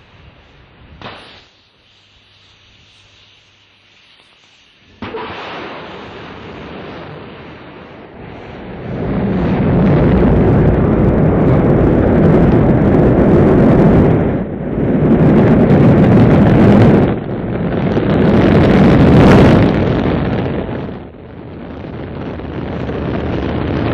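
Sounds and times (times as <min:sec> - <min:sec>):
rocket engines roaring: 0:04.9 - 0:23.9.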